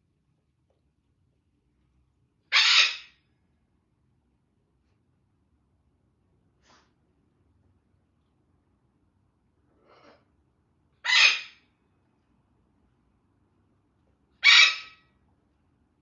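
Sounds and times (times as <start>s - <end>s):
parrot screeching: 2.5s - 3.2s, 11.0s - 11.6s, 14.4s - 15.0s.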